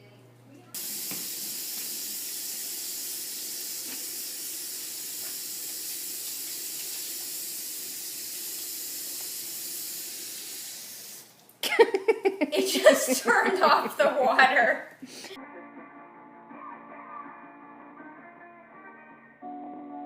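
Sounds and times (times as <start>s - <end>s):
water running from a tap: 0.8s - 11.3s.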